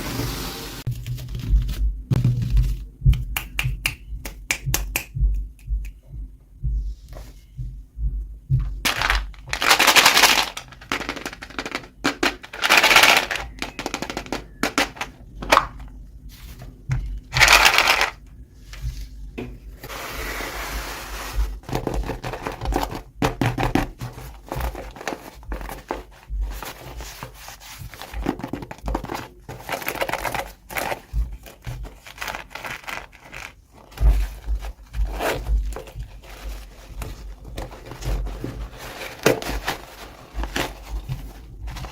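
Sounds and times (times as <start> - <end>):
packaging crinkling and tearing: 8.9 - 11.6, 29.6 - 41.9.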